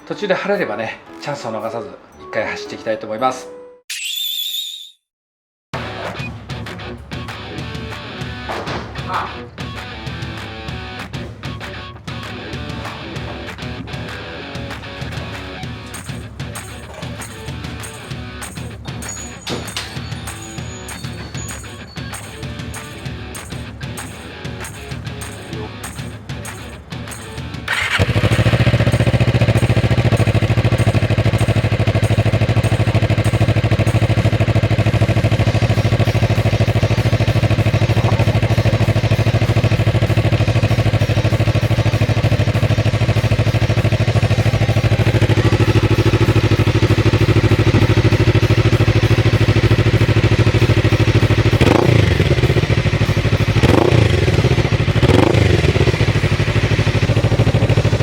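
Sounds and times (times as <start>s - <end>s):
motorcycle engine idling: 14.6s - 58.0s
motorcycle throttle revs: 27.4s - 58.0s.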